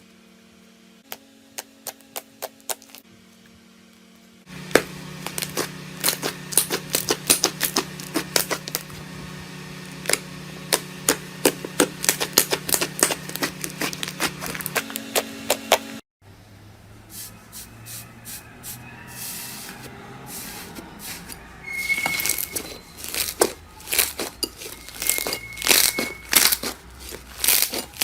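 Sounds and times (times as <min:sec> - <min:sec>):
crunchy slime crackling: 0:04.5 - 0:09.0, 0:09.8 - 0:15.7, 0:20.4 - 0:28.0.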